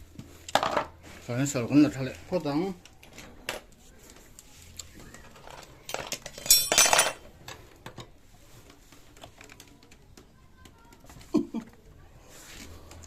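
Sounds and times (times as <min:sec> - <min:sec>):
metal tools clinking: 0:05.4 - 0:07.3.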